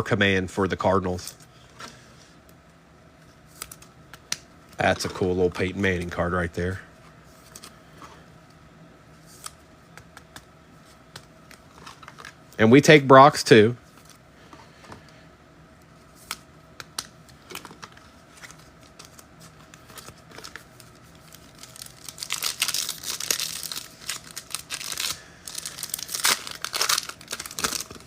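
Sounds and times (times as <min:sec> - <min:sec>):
foil wrapper tearing and crinkling: 0:18.4 - 0:28.0.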